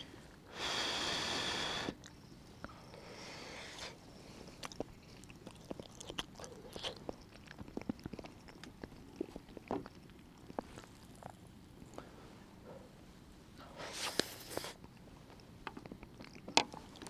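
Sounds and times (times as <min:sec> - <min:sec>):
person chewing with mouth clicks: 0:01.9 - 0:02.8, 0:03.6 - 0:12.0, 0:14.0 - 0:17.0.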